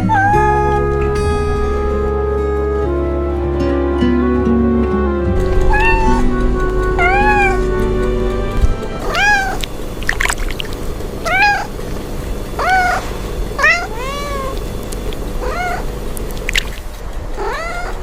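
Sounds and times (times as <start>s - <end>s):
cat meowing: 0.0s - 1.2s, 5.5s - 7.7s, 9.0s - 9.7s, 11.2s - 11.8s, 12.6s - 15.9s, 17.4s - 18.0s.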